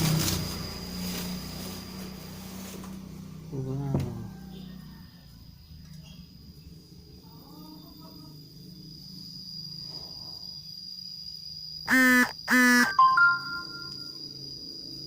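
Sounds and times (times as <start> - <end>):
high thin whine: 11.9 - 14.1
short high beeps: 11.9 - 14.1
flat buzzing tones: 11.9 - 14.4.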